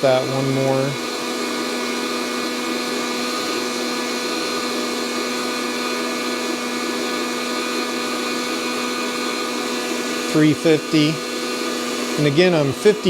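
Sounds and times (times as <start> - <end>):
coffee roaster fan blowing air: 0.0 - 13.0.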